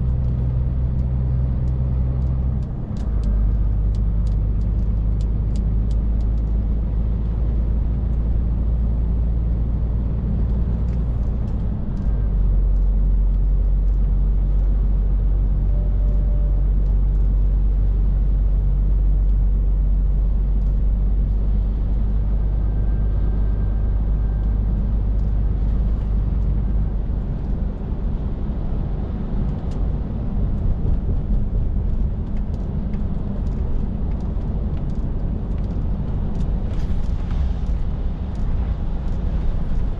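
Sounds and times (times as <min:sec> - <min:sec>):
road rumble: 0:00.0 - 0:39.9
truck diesel engine drone: 0:00.0 - 0:39.9.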